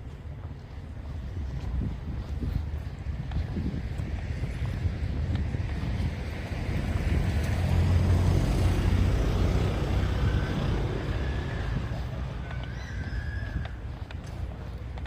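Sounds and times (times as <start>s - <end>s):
street noise: 0.0s - 15.0s
vehicle engine rumble passing: 3.5s - 15.0s.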